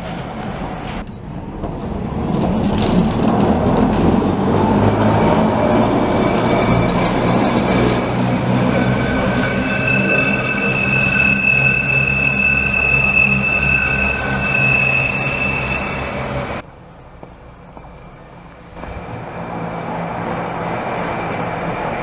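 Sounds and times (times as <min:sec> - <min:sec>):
railcar rumble: 0:00.0 - 0:22.0
high-pitched wheel squeal: 0:04.6 - 0:16.6.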